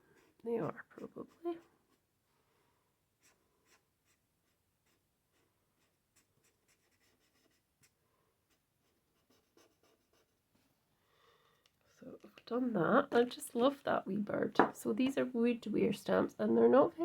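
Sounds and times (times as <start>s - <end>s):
marker nib scratching on card: 3.2s - 10.3s.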